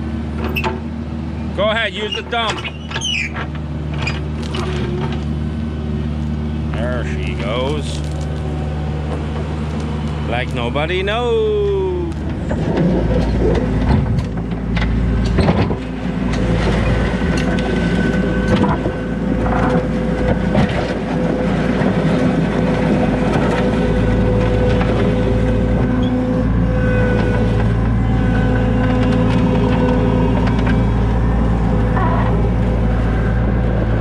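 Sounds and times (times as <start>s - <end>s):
loader engine running: 0.0s - 34.0s
high hydraulic whine: 23.4s - 34.0s.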